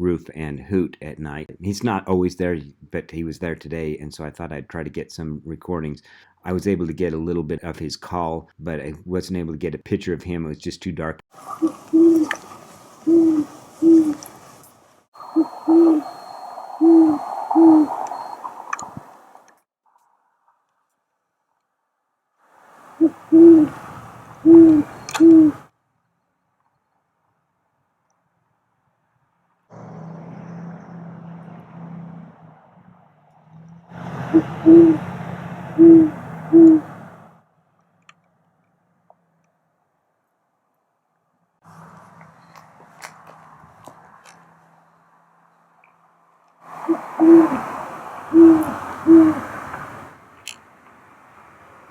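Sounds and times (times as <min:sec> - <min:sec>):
owl hooting: 0:11.4 - 0:14.3, 0:15.2 - 0:19.4, 0:22.9 - 0:25.7, 0:34.3 - 0:35.1, 0:35.7 - 0:37.0, 0:46.8 - 0:49.5
steady background hiss: 0:11.4 - 0:19.5, 0:22.5 - 0:25.7, 0:46.1 - 0:51.9
steady hiss and low hum: 0:22.6 - 0:25.7.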